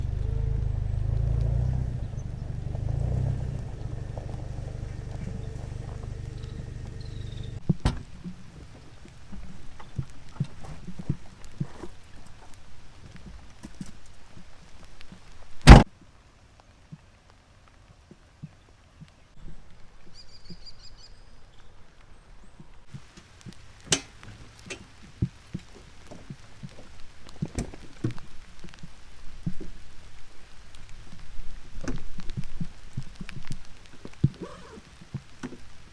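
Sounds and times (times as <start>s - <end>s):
bird chirping: 0.0s - 7.6s, 20.0s - 22.6s
vehicle engine rumbling: 0.0s - 12.6s, 15.6s - 15.8s
rain falling: 0.0s - 15.6s, 22.8s - 35.9s.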